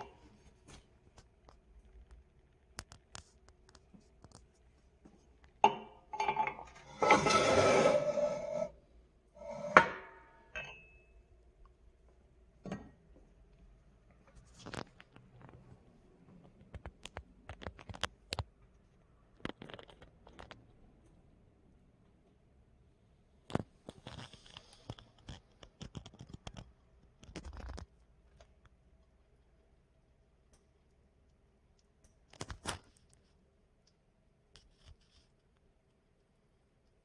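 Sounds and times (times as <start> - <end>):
rustling scraping noise: 6.7 - 8.8.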